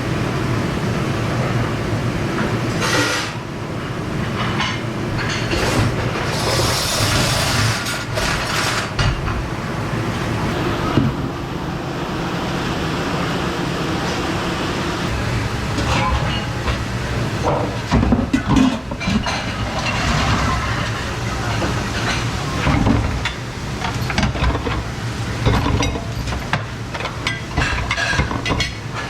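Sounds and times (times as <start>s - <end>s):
dish machine rumble and spray: 0.0s - 29.0s
plates and cutlery clattering: 15.8s - 16.8s, 17.4s - 24.8s, 25.4s - 29.0s.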